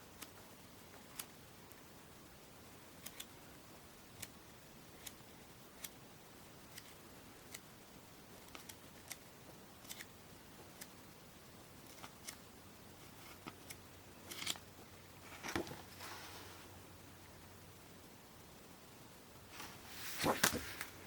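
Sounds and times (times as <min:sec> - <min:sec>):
low hiss: 0:00.0 - 0:21.0
paper booklet pages clicking: 0:08.4 - 0:09.2, 0:09.8 - 0:10.1, 0:20.2 - 0:20.9.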